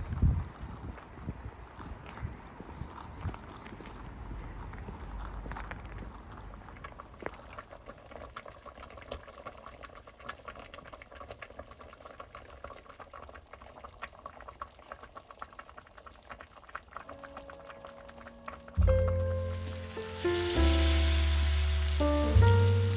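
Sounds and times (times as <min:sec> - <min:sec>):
liquid boiling in a pot: 0:06.1 - 0:17.5.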